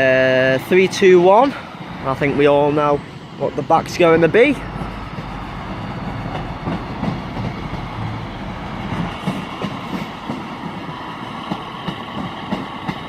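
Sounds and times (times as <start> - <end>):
train running hum: 0.0 - 13.0
train wheels knocking on rail joints: 4.5 - 13.0.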